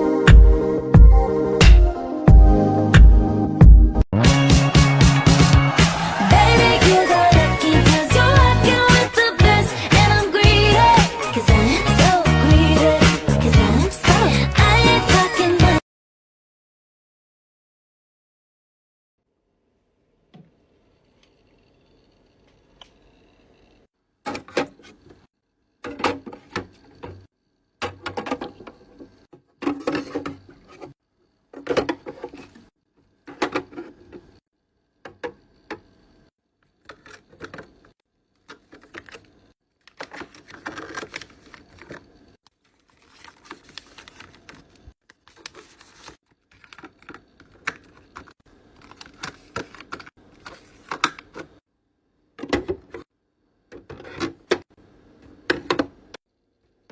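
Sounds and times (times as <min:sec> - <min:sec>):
skincare bottles and jars clattering: 0:25.8 - 0:32.6, 0:33.3 - 0:34.3, 0:36.9 - 0:42.1, 0:46.5 - 0:51.6.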